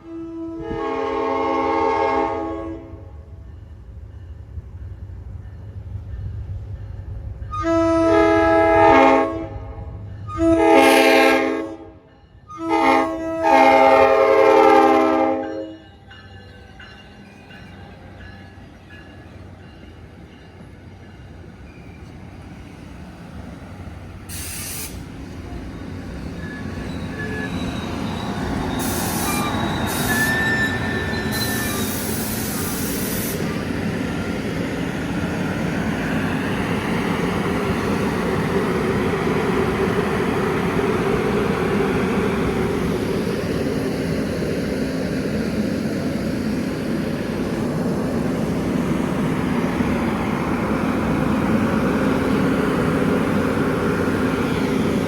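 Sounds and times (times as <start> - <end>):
train rumbling past: 0.0 - 55.0
short hiss bursts: 24.3 - 25.2, 28.8 - 30.4, 31.6 - 33.5.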